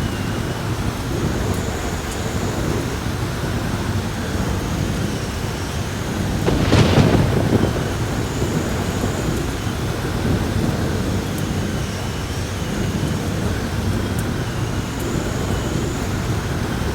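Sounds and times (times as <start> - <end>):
heavy rain: 0.0 - 16.9
thunderclap and rumbling: 6.0 - 16.9.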